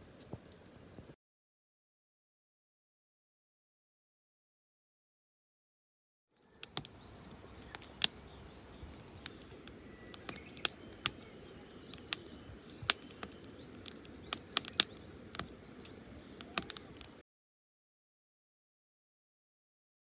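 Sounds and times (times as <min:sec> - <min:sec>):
sharp crackles and snaps: 0:00.0 - 0:01.2, 0:06.4 - 0:17.2
faint bird chirps: 0:06.4 - 0:17.2.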